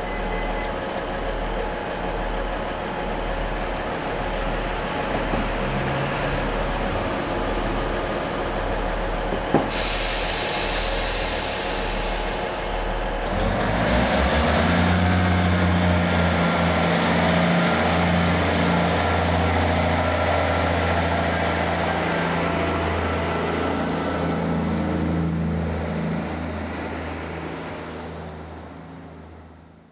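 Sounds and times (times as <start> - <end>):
diesel train engine humming: 0.0 - 29.9
hiss: 9.6 - 14.2.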